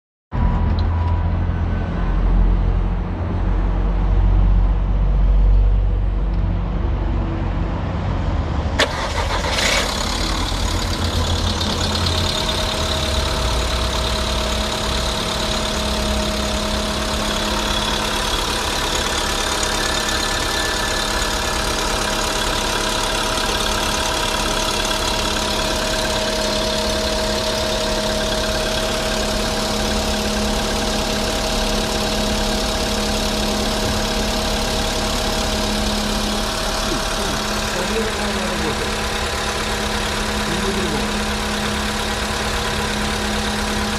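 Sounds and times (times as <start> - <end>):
car engine starting and idling: 8.6 - 43.9.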